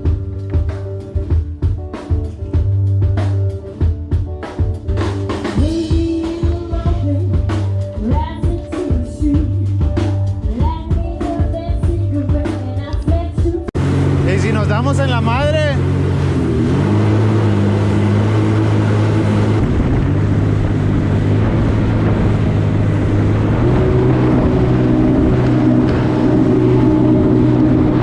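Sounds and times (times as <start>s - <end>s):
drum kit beat: 0.0s - 13.7s
held bass notes: 0.0s - 28.0s
person singing: 5.6s - 7.4s.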